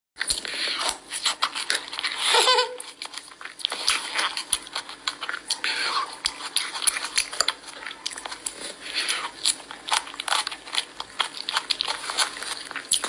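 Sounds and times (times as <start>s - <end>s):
wet mouth clicks: 0.2s - 1.8s
child chewing crunchy food: 0.2s - 13.0s.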